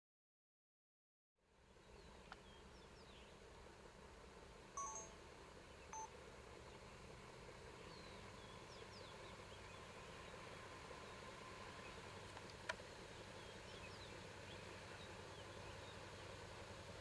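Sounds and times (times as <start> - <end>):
short bird chirps: 4.8 - 5.2.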